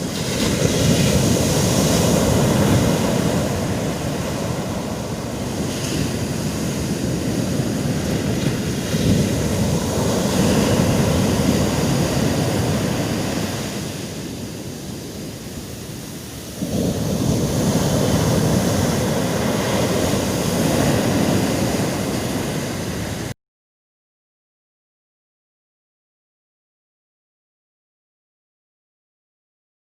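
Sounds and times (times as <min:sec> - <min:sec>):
sea waves washing ashore: 0:00.0 - 0:23.4.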